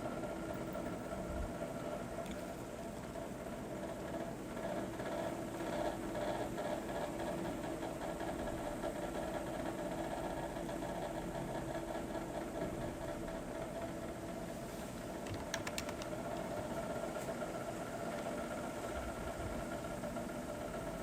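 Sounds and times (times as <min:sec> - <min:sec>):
steady mechanical hum: 0:00.0 - 0:21.0
faint clicks: 0:15.2 - 0:16.5.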